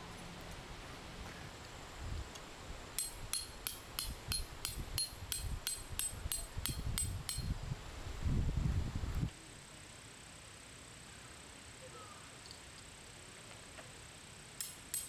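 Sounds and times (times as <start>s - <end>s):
metal stake hammered into ground: 3.0s - 7.5s, 14.6s - 15.0s.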